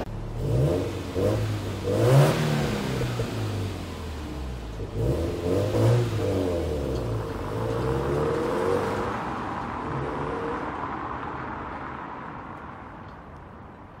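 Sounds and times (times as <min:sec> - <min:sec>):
car engine accelerating: 0:00.0 - 0:11.1.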